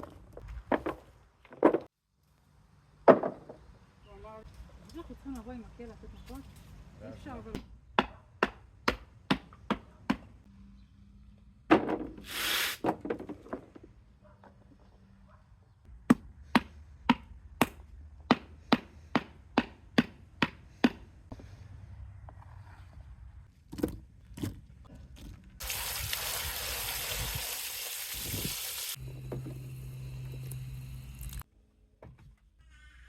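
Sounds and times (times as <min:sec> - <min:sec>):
low hum with hiss: 0:29.0 - 0:31.4.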